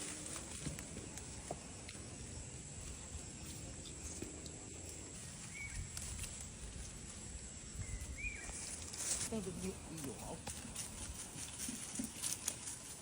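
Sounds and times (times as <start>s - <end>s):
soft ticks and rustles: 0.0s - 7.4s, 8.5s - 13.0s
faint bird chirp: 5.3s - 6.0s, 7.7s - 8.8s.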